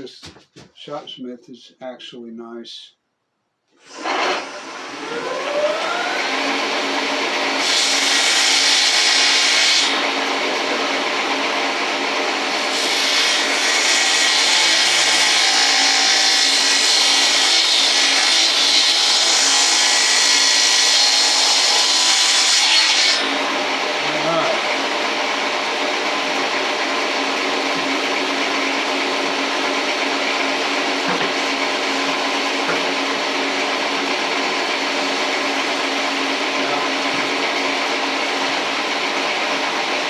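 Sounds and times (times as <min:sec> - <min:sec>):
saw motor running: 0:03.9 - 0:40.0
saw blade cutting wood: 0:07.5 - 0:11.4, 0:12.4 - 0:24.9, 0:27.3 - 0:33.1.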